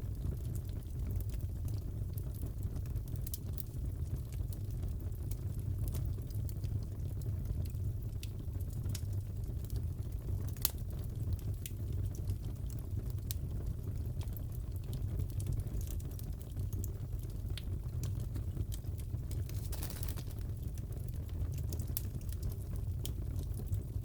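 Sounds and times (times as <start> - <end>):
low rumble of flames: 0.0 - 24.0
fire popping and crackling: 0.1 - 24.0.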